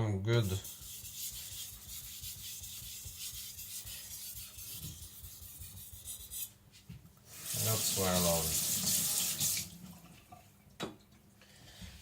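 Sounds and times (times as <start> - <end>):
knife rubbing on whetstone: 0.4 - 6.5.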